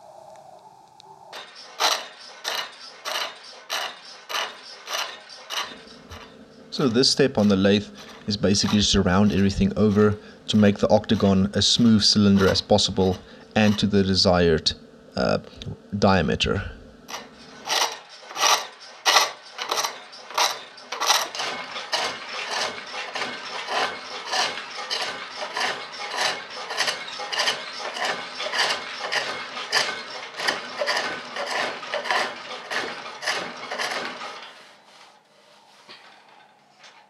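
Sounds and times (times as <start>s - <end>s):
rhythmic scraping cuts on wood: 1.4s - 14.0s, 17.1s - 35.2s.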